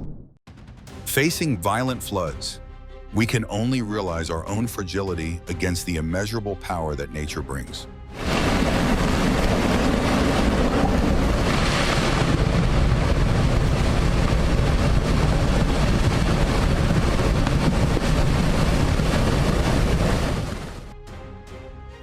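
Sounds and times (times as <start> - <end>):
floodwater rushing: 8.1 - 20.9
wind buffeting microphone: 8.2 - 20.9.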